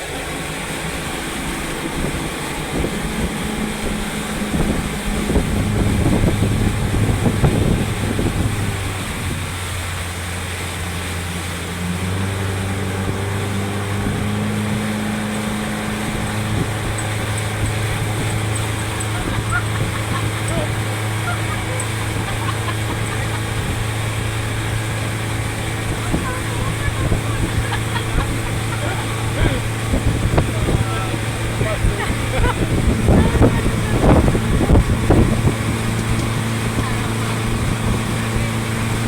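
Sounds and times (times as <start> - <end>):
speedboat motor droning: 0.0 - 39.0
water rushing: 0.0 - 39.0
wind buffeting microphone: 0.0 - 39.0.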